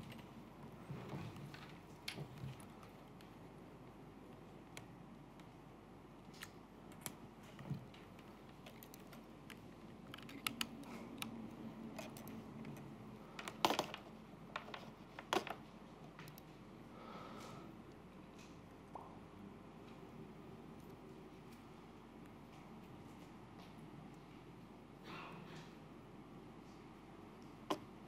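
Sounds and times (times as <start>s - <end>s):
laptop keyboard typing: 6.4s - 16.5s.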